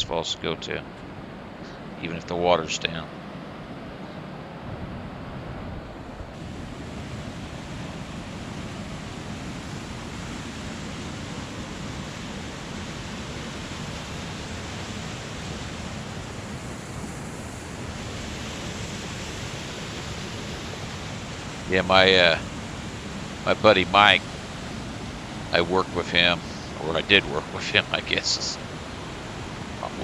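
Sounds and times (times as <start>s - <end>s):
waterfall rushing: 6.4s - 30.0s.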